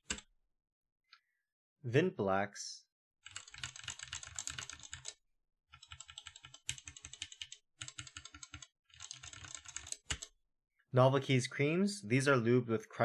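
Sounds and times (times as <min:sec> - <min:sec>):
mechanical keyboard typing: 0:03.2 - 0:05.2, 0:05.8 - 0:10.3.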